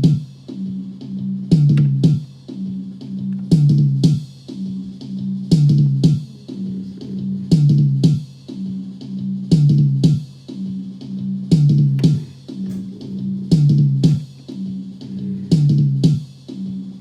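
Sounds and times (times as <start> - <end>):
bass and guitar groove: 0.0 - 10.1, 11.1 - 16.7
drum kit hits: 11.5 - 14.8.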